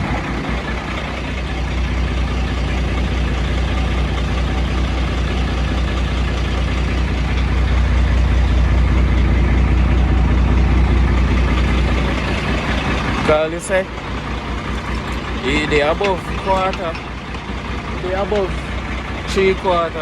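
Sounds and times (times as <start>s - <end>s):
diesel truck engine running: 0.0s - 20.0s.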